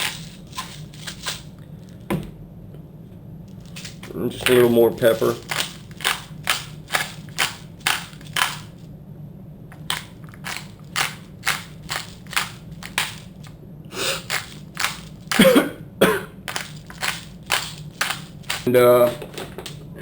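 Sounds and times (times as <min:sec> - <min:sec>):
pepper mill grinding: 0:00.0 - 0:02.0, 0:03.6 - 0:08.9, 0:09.7 - 0:15.7, 0:16.4 - 0:19.8.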